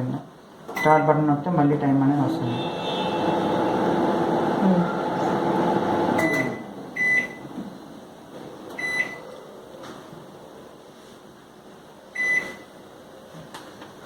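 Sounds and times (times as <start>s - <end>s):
microwave oven humming: 2.4s - 8.0s.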